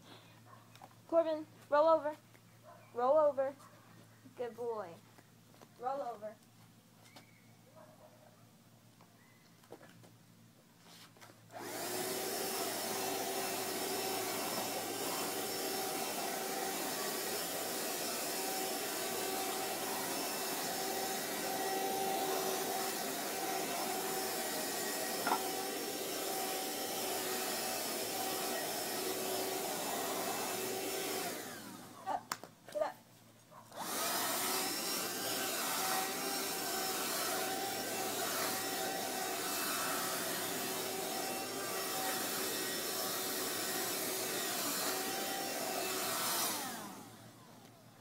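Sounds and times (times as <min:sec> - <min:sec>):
vacuum cleaner running: 0:11.5 - 0:32.0, 0:33.8 - 0:47.6.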